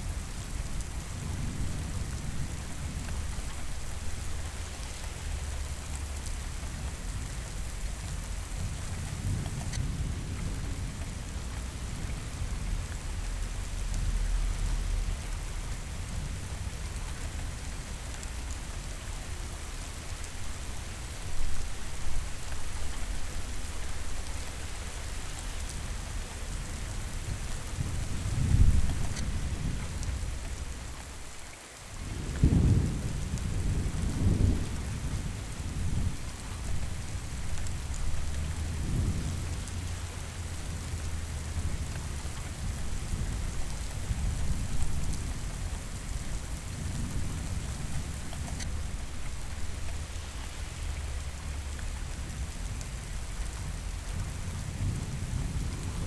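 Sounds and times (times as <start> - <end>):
steady rain falling: 0.0 - 56.0
rolling thunder: 32.1 - 56.0.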